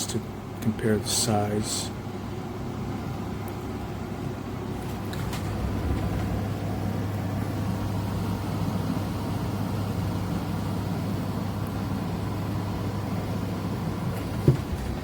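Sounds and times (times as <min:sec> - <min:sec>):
low hum: 0:04.7 - 0:15.0.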